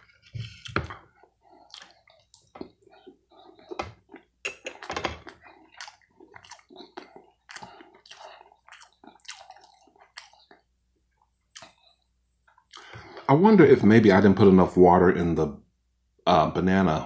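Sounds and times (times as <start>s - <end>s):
person chewing food: 0.0s - 13.3s.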